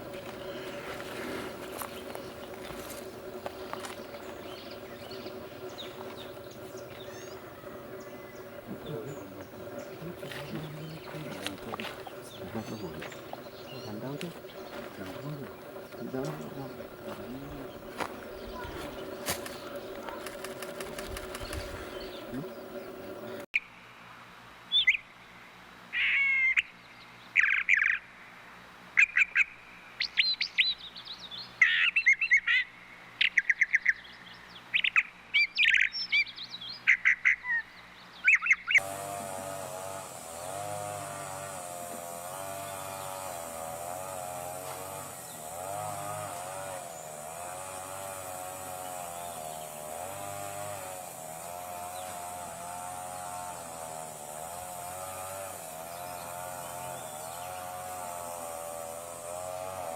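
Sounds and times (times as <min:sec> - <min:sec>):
droning hum: 0:00.0 - 0:23.5, 0:38.8 - 0:59.9.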